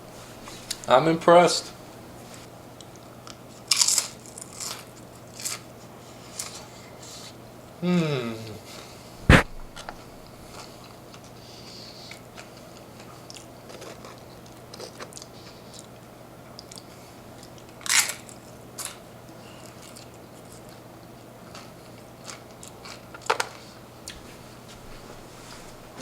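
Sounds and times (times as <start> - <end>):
tortilla chips crunching: 2.8 - 5.7, 16.6 - 19.0, 21.4 - 23.6.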